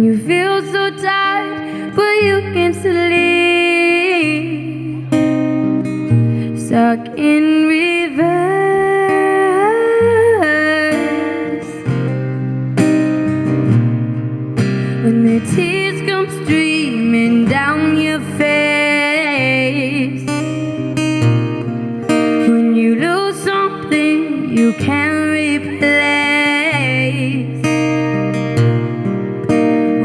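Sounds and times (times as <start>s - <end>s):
singing voice melody: 0.0s - 5.2s, 6.5s - 12.0s, 15.0s - 20.4s, 22.4s - 27.7s
acoustic guitar: 0.0s - 30.0s.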